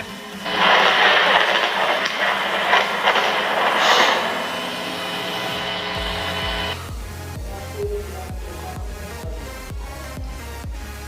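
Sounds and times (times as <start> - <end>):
steady loud hiss of storm: 0.0 - 6.8
lightning cracks: 0.4 - 6.7.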